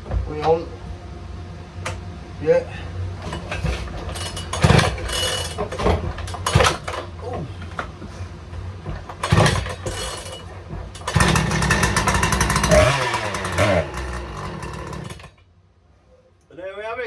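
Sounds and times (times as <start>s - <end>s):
pull cord starter bursts: 4.2s - 7.0s, 9.1s - 15.4s.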